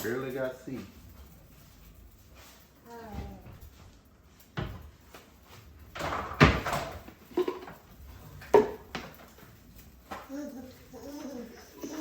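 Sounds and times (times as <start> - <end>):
household knocks and bangs: 5.9 - 7.9.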